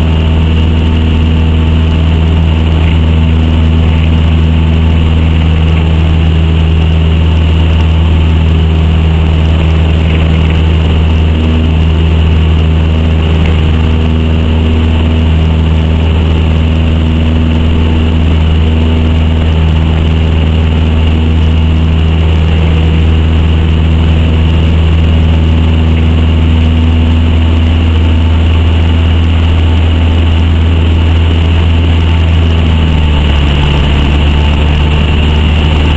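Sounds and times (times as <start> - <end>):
propeller plane engine drone: 0.0 - 35.9.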